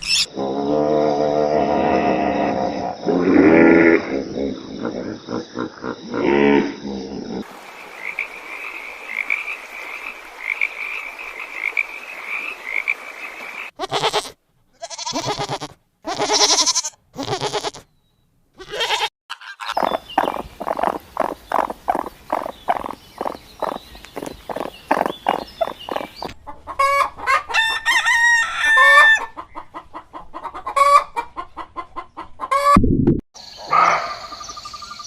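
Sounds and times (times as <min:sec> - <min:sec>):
animal bleating: 0:13.8 - 0:17.9, 0:18.6 - 0:19.7
short clucking calls: 0:18.6 - 0:27.1
high chirping calls: 0:19.7 - 0:26.4, 0:33.4 - 0:35.0.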